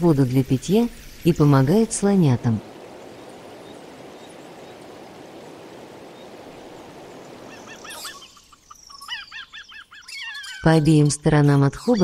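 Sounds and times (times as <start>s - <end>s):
water rushing: 0.0s - 9.2s
bird chirping: 2.7s - 11.1s.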